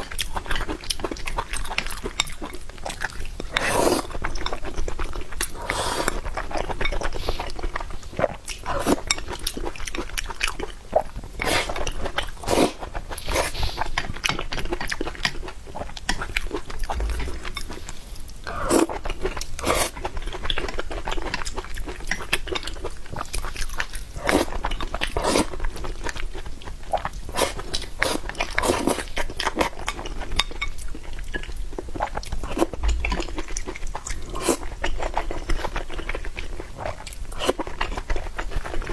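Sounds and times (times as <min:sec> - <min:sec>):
person chewing food: 0:00.0 - 0:38.9
crunches and wet mouth clicks: 0:32.8 - 0:33.5.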